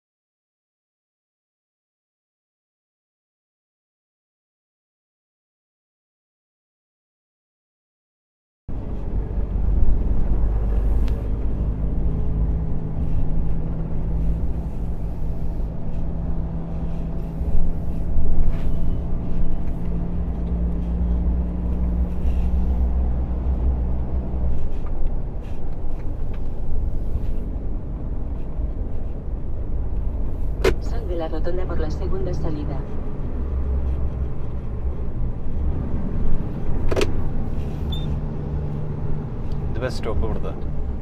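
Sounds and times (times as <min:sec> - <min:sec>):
lorry diesel engine running: 0:08.7 - 0:41.0
road noise: 0:08.7 - 0:41.0.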